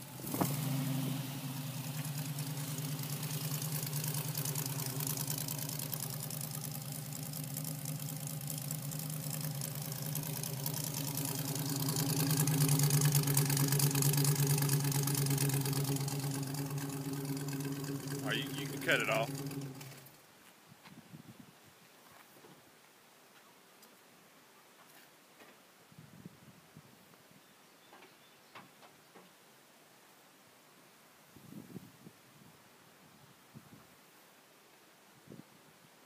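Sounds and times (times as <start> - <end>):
car engine idling: 0.0 - 20.2.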